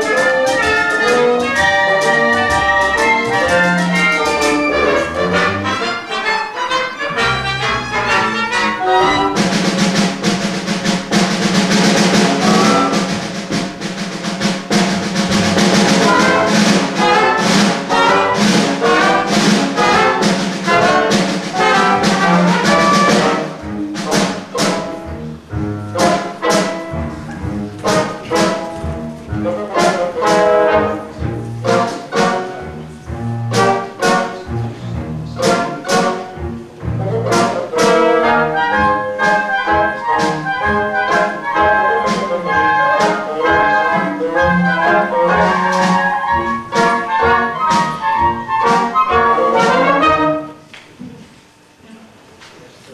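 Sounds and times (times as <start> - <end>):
brass band playing dance music: 0.0 - 50.7
sharp percussive hits: 9.3 - 25.1.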